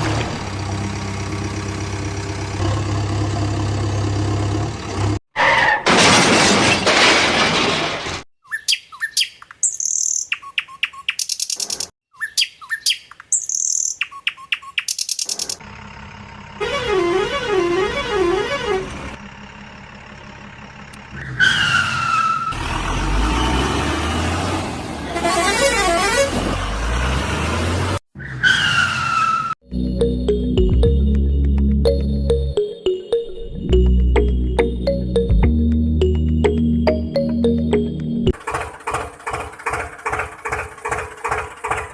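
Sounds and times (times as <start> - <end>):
vehicle engine noise: 0.0 - 5.2, 14.9 - 32.5, 33.7 - 41.9.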